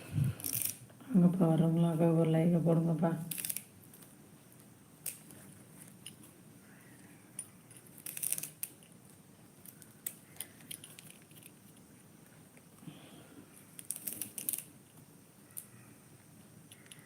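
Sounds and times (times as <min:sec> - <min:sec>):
small objects clicking and rustling: 0:00.4 - 0:00.8, 0:03.3 - 0:06.4, 0:07.3 - 0:11.9, 0:13.7 - 0:15.8, 0:16.7 - 0:17.0.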